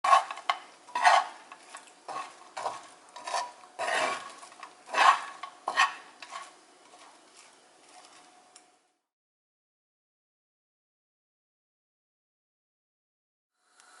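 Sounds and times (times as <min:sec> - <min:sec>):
spatula scraping frying pan: 0:00.0 - 0:08.3.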